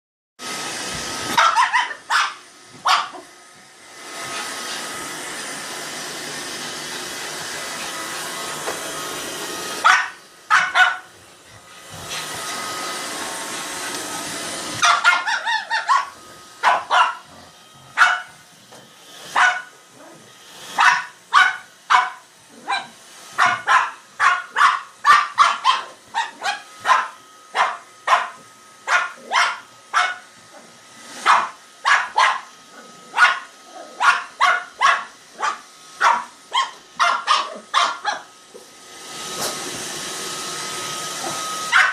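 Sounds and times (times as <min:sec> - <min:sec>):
robot vacuum whirring: 0:00.4 - 0:41.9
dog barking: 0:01.4 - 0:03.3, 0:09.8 - 0:11.1, 0:14.8 - 0:17.4, 0:18.0 - 0:18.4, 0:19.3 - 0:20.2, 0:20.8 - 0:30.2, 0:31.2 - 0:32.5, 0:33.1 - 0:38.3.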